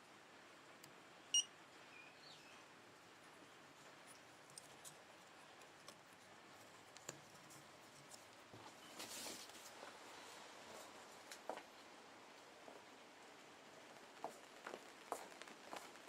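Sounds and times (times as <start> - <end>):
faint clicks and ticks: 3.8 - 8.5.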